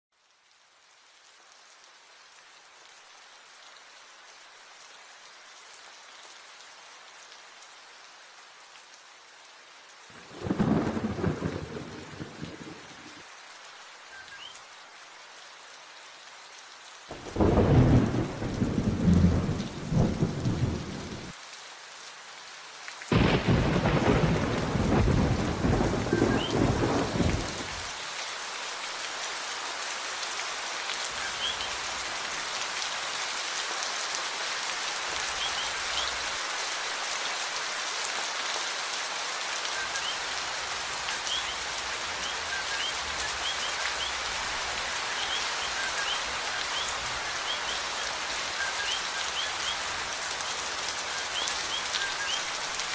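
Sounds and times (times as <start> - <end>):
steady rain: 0.1 - 52.9
thunder rumble: 10.2 - 13.0, 17.3 - 21.3, 23.1 - 27.8.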